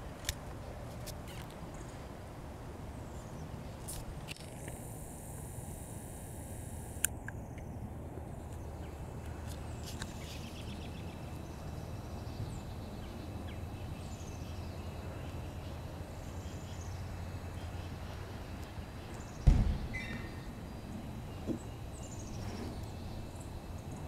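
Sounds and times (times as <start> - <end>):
small birds chirping: 7.2 - 24.0
loud thump: 19.4 - 20.4
harsh bird call: 19.4 - 20.6.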